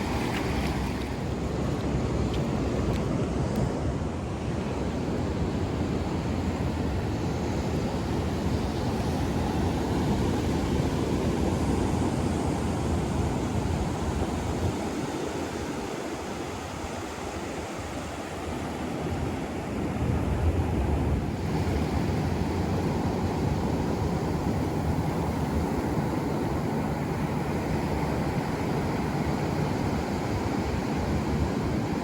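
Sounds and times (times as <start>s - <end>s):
ocean surf washing on beach: 0.0s - 32.0s
wind buffeting microphone: 18.2s - 32.0s.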